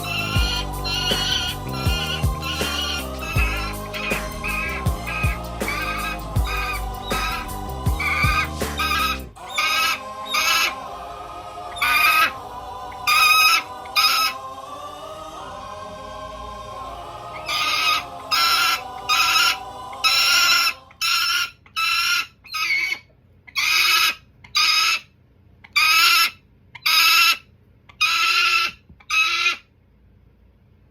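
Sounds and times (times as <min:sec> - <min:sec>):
falcon calling: 0:00.0 - 0:10.8, 0:11.7 - 0:14.5, 0:17.3 - 0:22.9
background music: 0:00.0 - 0:21.1.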